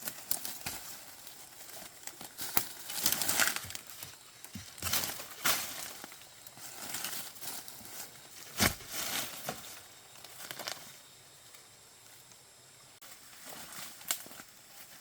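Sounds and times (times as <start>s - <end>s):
rustling and crunching leaves: 0.0s - 11.1s, 13.0s - 15.0s.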